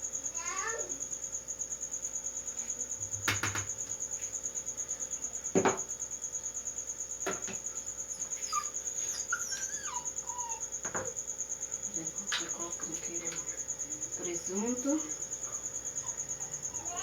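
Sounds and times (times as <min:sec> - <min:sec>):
cricket trilling: 0:00.0 - 0:17.0
sharp knocks from handling things: 0:03.2 - 0:04.0, 0:05.5 - 0:05.9, 0:07.2 - 0:07.7.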